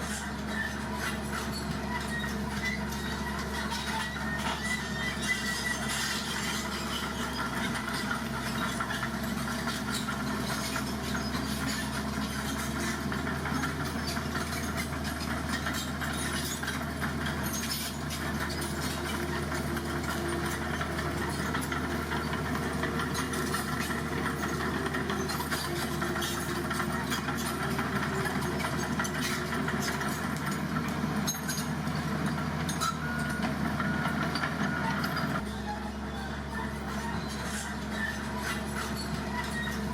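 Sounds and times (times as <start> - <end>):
heavy diesel engine idling: 0.0 - 39.9.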